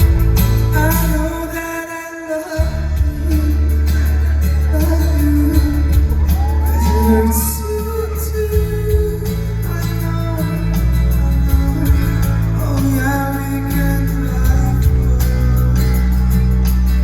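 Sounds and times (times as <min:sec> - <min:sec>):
heavy bass: 0:00.0 - 0:01.7, 0:02.6 - 0:17.0
live band playing: 0:00.0 - 0:17.0
person singing: 0:00.0 - 0:17.0.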